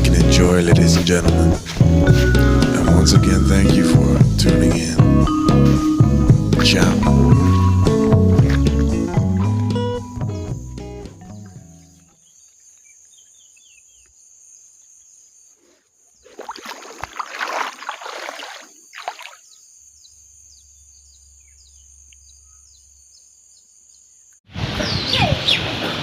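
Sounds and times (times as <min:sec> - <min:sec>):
high insect trill: 0:06.8 - 0:24.4.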